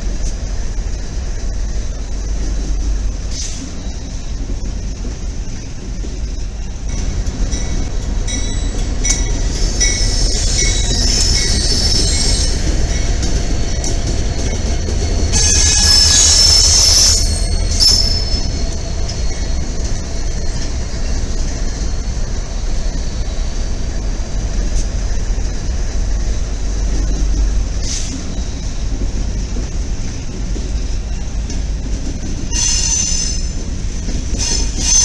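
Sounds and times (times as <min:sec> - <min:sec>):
diesel locomotive engine rumble: 0:00.0 - 0:35.0
high wheel squeal: 0:06.9 - 0:24.0, 0:32.4 - 0:33.6, 0:34.3 - 0:35.0.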